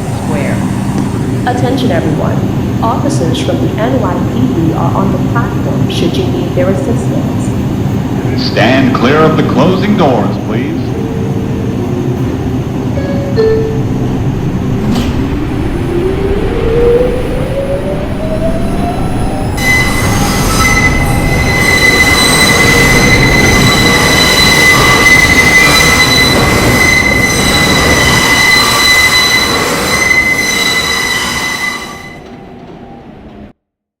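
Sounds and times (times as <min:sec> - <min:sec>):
traction motor whine: 0:14.1 - 0:31.5
high-pitched wheel squeal: 0:19.4 - 0:32.3.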